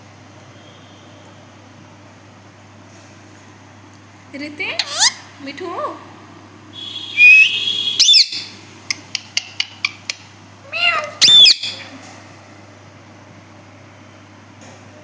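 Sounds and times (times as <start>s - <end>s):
parrot screeching: 4.8s - 5.2s, 7.2s - 8.5s, 10.6s - 11.9s.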